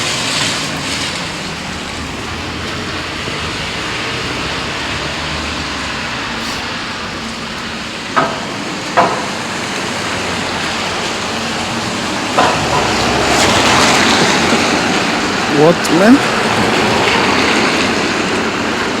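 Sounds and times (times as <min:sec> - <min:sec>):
heavy rain: 0:00.0 - 0:19.0.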